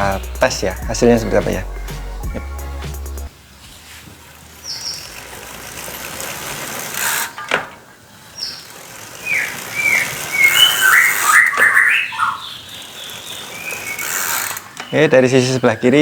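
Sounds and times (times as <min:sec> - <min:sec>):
bicycle freewheel clicking: 0:04.2 - 0:15.0.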